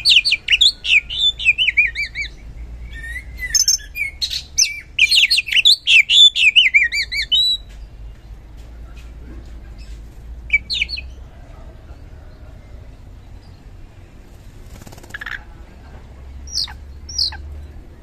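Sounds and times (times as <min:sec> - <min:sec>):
bird calling: 0:16.3 - 0:17.9.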